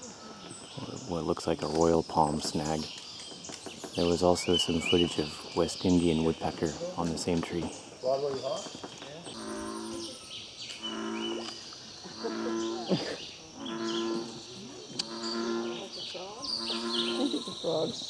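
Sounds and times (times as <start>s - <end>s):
bullfrog deep droning call: 9.3s - 18.0s.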